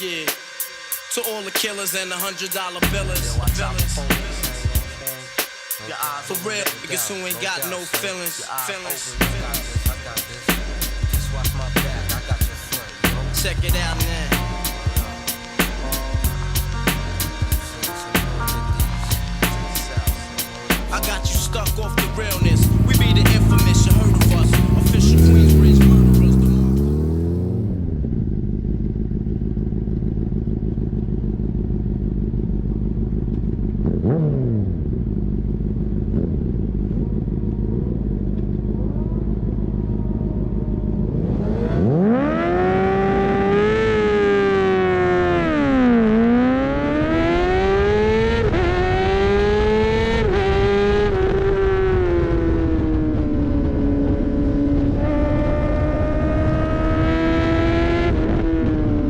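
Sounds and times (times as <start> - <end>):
motorcycle engine revving: 22.1 - 59.0.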